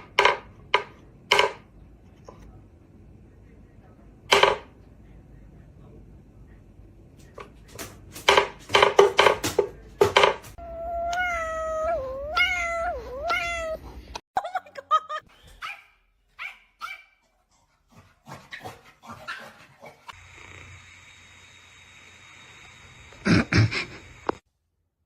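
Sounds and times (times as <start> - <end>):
animal barks or yelps: 15.6 - 17.2.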